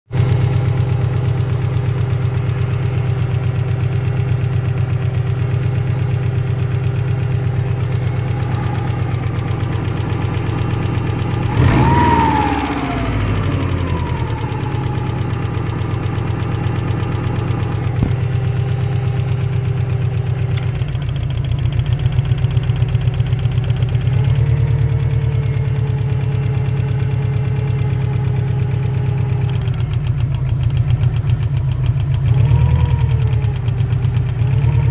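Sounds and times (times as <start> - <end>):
car engine idling with knock: 0.1 - 34.9
car engine revving: 7.6 - 19.0.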